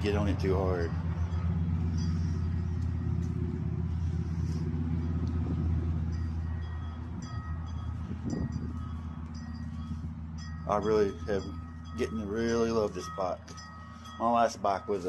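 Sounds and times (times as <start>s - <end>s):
motorcycle engine idling drone: 0.0s - 15.0s.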